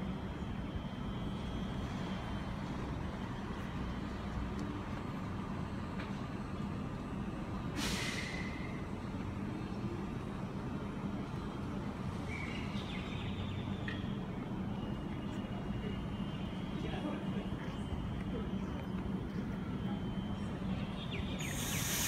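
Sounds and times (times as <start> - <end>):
electric train humming past: 0.0 - 22.0
air release hiss: 7.8 - 8.6, 21.4 - 22.0.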